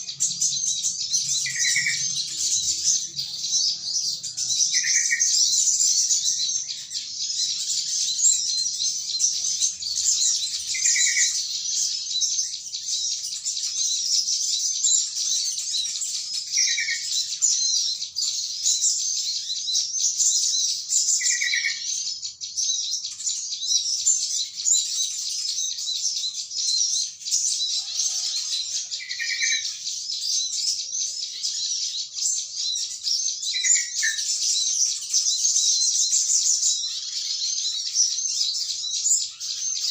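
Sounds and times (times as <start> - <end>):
small birds twittering: 0.0 - 39.9.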